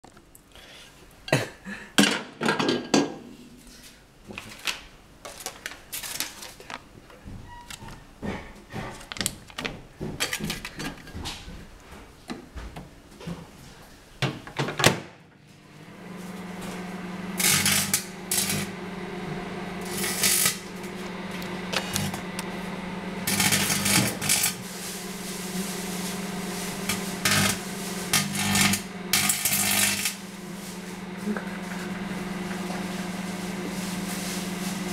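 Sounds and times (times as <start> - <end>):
microwave oven humming: 15.4 - 34.9
foil crackling and sparking: 17.4 - 18.8, 19.8 - 21.0, 21.7 - 34.9.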